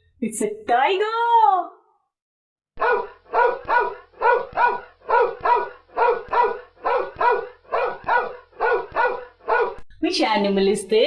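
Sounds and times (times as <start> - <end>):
dog barking: 2.8 - 9.8.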